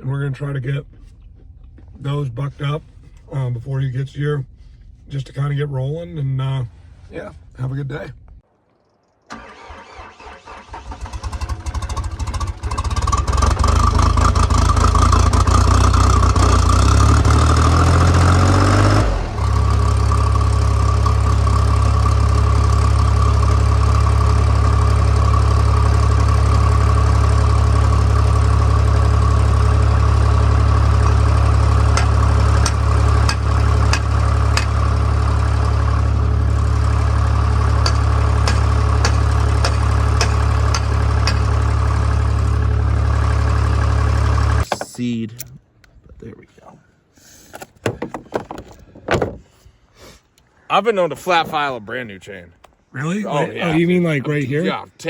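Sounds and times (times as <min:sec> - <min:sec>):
engine cranking and idling: 0:09.3 - 0:44.7.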